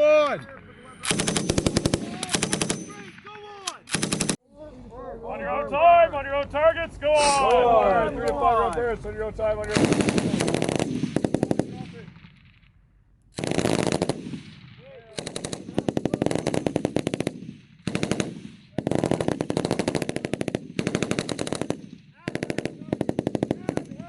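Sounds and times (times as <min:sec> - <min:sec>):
machine gun bursts: 0:01.0 - 0:03.0, 0:03.9 - 0:04.4, 0:09.7 - 0:11.7.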